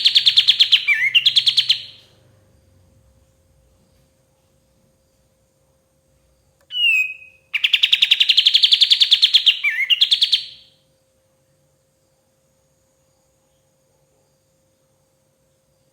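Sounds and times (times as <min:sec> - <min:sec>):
songbird singing trill: 0:00.0 - 0:02.2, 0:06.6 - 0:10.8.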